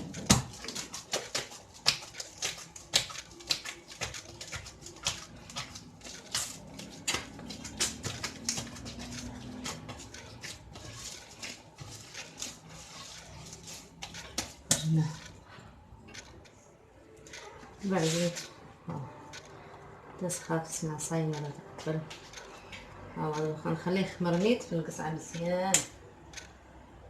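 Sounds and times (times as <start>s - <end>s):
dough slapping and squelching: 0.0s - 15.5s.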